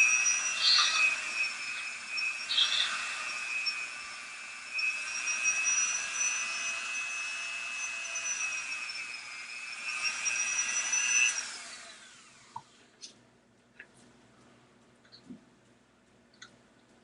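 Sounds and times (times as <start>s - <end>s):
rotary tool whining: 0.0s - 12.7s.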